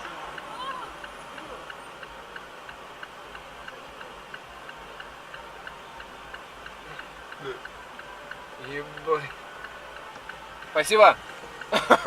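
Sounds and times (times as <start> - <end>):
car indicator ticking: 0.0 - 12.0
engine and road hum: 0.0 - 12.0.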